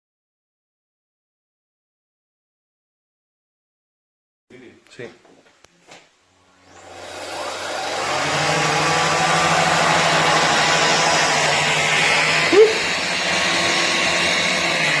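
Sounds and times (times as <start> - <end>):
vacuum cleaner running: 6.6 - 15.0.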